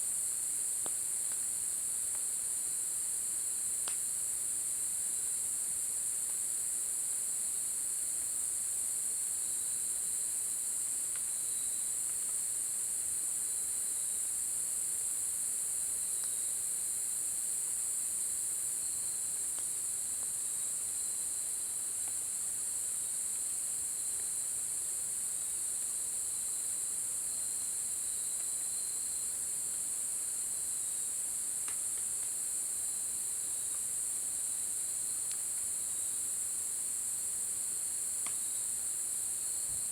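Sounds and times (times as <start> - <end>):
faint ticks: 19.6 - 20.3, 31.6 - 32.4, 38.2 - 38.4.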